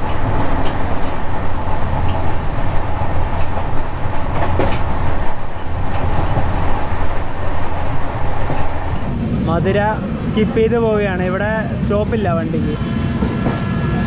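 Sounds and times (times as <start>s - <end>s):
clacks over rail joints: 0.0s - 9.1s
wheels rumbling on rails: 0.0s - 14.0s.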